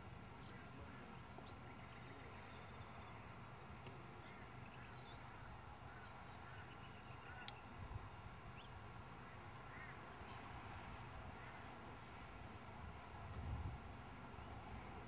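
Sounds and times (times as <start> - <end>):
faint bird calls: 0.2 - 7.8, 8.5 - 10.6, 11.2 - 12.2.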